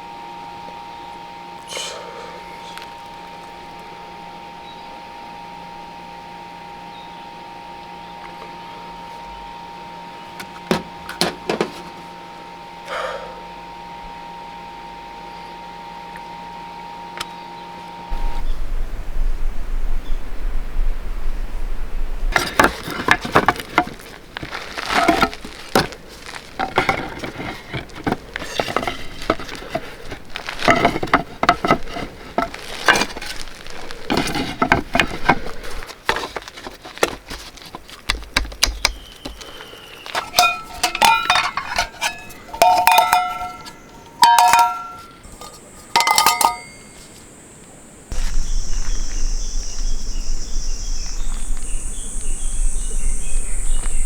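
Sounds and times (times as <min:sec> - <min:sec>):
metal gear clinking: 0:40.1 - 0:46.9.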